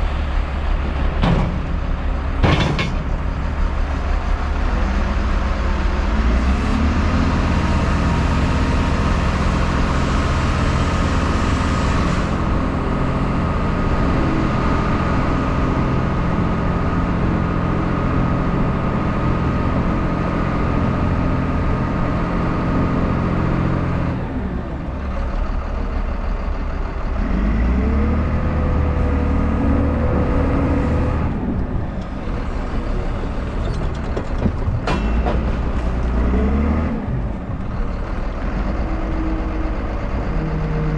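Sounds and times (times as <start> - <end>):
truck diesel engine running: 0.0 - 40.9
hydraulic whine: 28.9 - 36.4.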